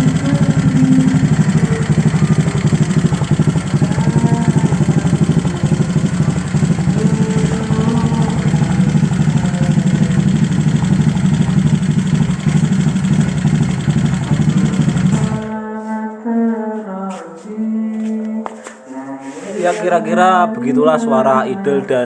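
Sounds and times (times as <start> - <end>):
melodic sound with wavering pitch: 0.0 - 6.3
scooter engine idling: 0.0 - 15.7.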